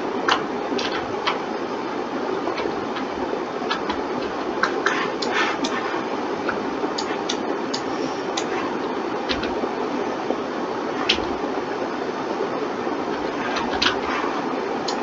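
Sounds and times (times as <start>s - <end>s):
steady background hiss: 0.0s - 15.0s
computer mouse clicks: 0.3s - 1.4s, 2.5s - 9.6s, 13.1s - 15.0s
keyboard clicks: 0.3s - 1.4s, 2.5s - 9.6s, 11.0s - 11.4s, 13.1s - 15.0s.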